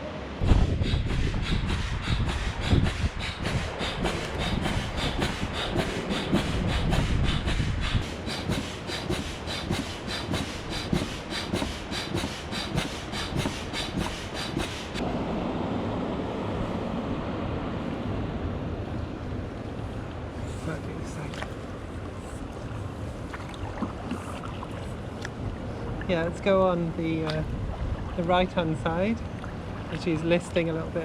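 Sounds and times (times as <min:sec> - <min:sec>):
water noise: 0:00.0 - 0:31.0
wind: 0:00.0 - 0:31.0
boat diesel engine knocking: 0:00.7 - 0:15.0.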